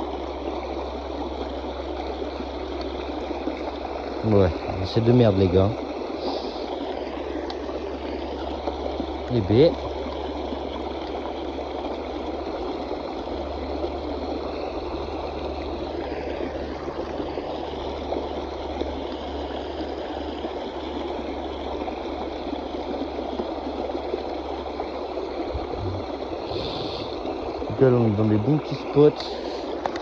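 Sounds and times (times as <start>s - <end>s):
river water rushing: 0.0s - 30.0s.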